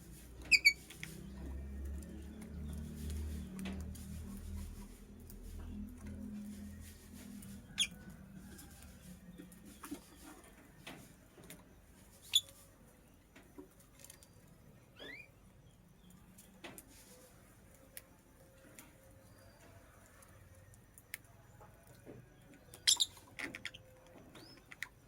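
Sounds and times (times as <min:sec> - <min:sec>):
lovebird chirping: 0:00.5 - 0:00.8, 0:12.2 - 0:12.6, 0:14.0 - 0:16.2, 0:22.6 - 0:24.7.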